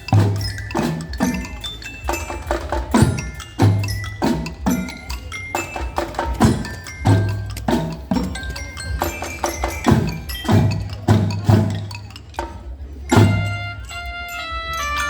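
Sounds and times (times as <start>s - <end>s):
ringing mallet percussion: 0.0s - 15.0s.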